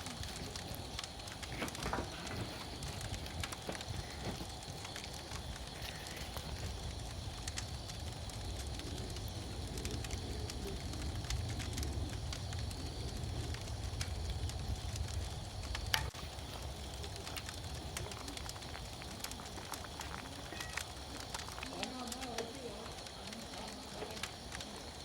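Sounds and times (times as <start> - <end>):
wood fire crackling: 0.0 - 25.0
sharp pops: 15.2 - 24.9.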